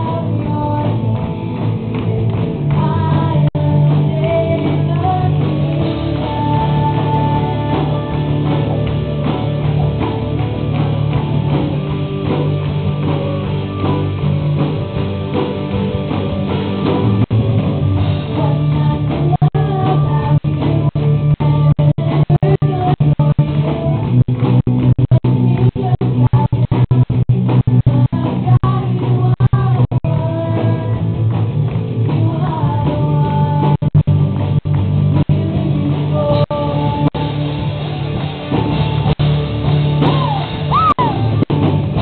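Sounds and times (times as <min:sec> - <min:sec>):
person singing: 0:00.0 - 0:09.0, 0:18.2 - 0:24.2, 0:27.8 - 0:31.2, 0:32.1 - 0:34.1, 0:35.1 - 0:37.6
live rock band playing: 0:00.0 - 0:42.0.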